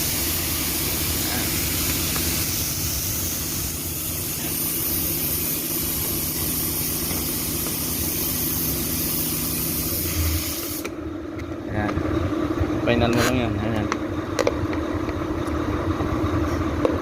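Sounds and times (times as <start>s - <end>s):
high hiss: 0.0s - 10.9s
low engine-like hum: 0.0s - 17.0s.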